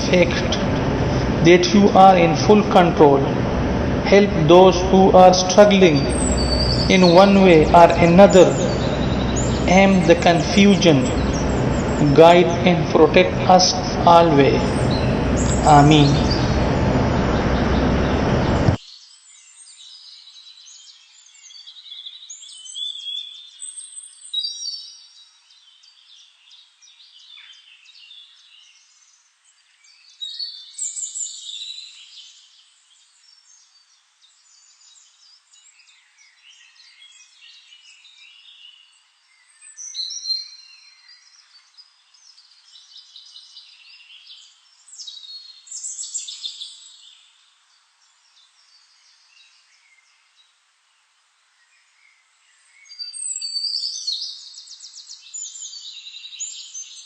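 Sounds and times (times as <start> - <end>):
loud full-range sound: 0.0 - 18.8
songbirds chirping and trilling: 0.0 - 57.0.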